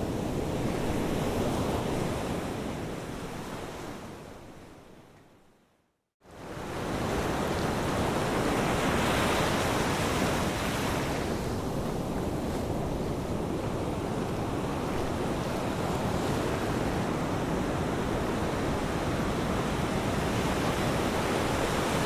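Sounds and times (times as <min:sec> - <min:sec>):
ocean surf washing: 0:06.7 - 0:22.0.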